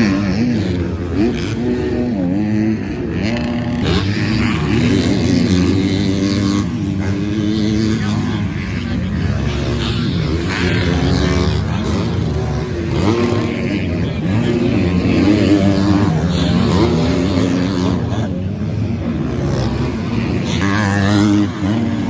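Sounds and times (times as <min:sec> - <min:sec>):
motocross bikes revving: 0:00.0 - 0:22.0.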